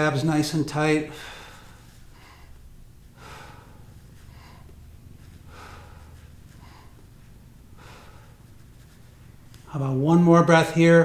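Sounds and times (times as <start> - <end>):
low room hum: 0.0 - 11.0
person breathing softly: 1.1 - 9.4.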